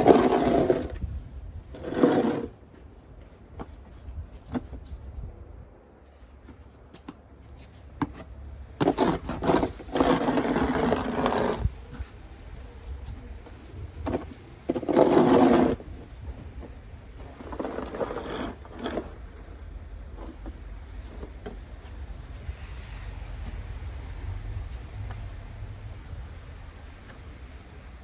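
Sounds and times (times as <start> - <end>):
scraping strokes: 0.0 - 1.1, 1.7 - 2.6, 8.8 - 16.0, 17.2 - 23.8.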